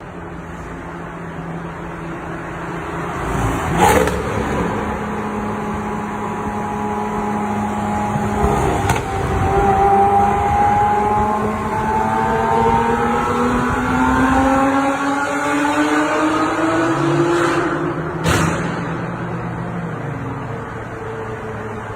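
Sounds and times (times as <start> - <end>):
sports car engine accelerating: 0.0 - 21.9
sharp crack: 18.2 - 19.2.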